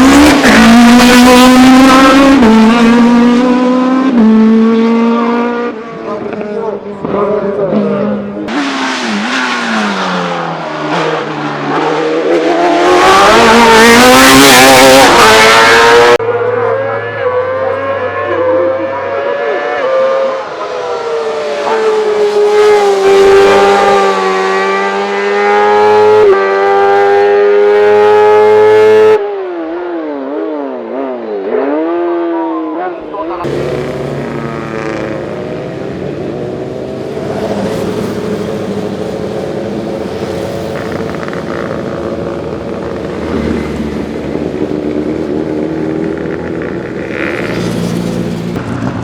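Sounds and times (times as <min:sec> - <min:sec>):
race car engines at full throttle: 0:00.0 - 0:49.0.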